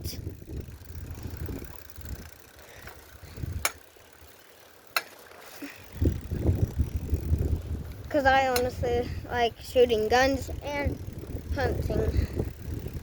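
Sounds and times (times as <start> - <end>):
wind buffeting microphone: 0.0 - 3.8, 5.8 - 13.0
sharp clicks: 3.6 - 3.9.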